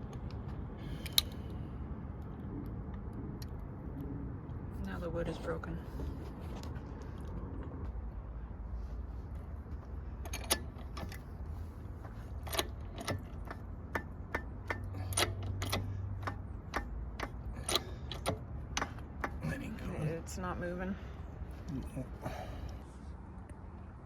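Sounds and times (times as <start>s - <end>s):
low steady hum: 0.0s - 24.0s
ratchet wrench clicking: 12.3s - 19.4s.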